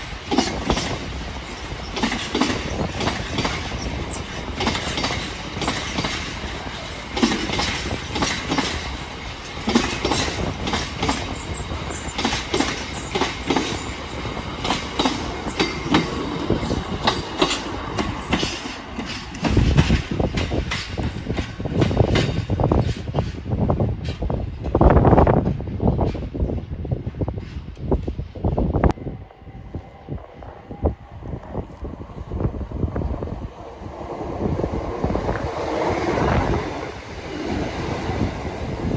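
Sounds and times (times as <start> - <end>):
train wheels clicking over rail joints: 0.0 - 28.6
deep train rumble: 0.0 - 38.9.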